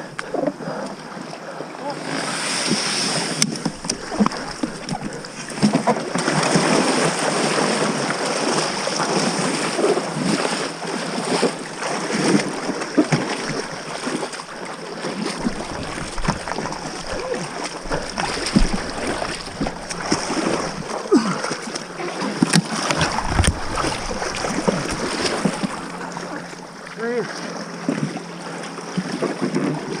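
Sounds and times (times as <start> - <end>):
water splashing around boat: 0.0 - 30.0
wind noise on microphone: 23.0 - 26.0.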